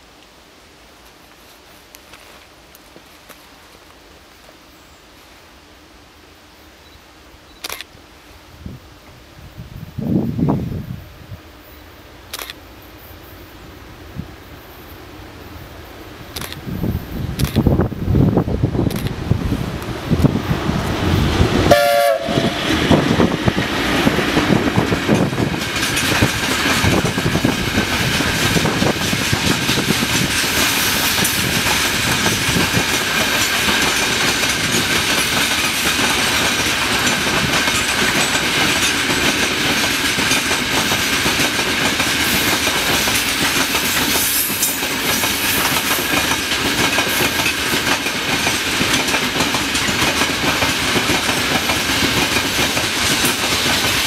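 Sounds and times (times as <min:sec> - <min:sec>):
train wheels clattering on rails: 0:19.8 - 0:54.0
train horn: 0:21.6 - 0:22.8.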